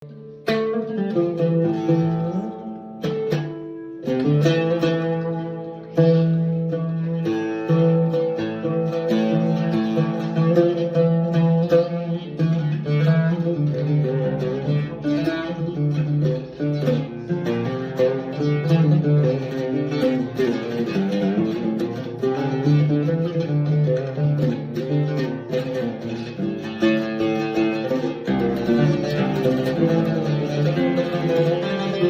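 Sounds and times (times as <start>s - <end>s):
oud plucked melody: 0.0s - 32.0s.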